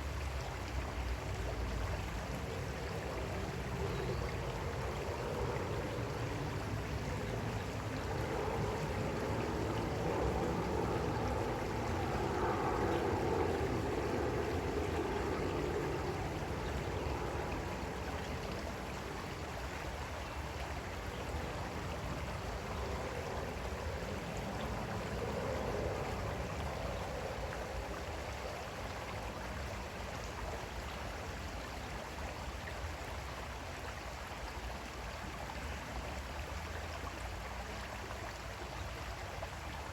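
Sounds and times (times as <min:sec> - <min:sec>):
creek water flowing over stones: 0:00.0 - 0:39.9.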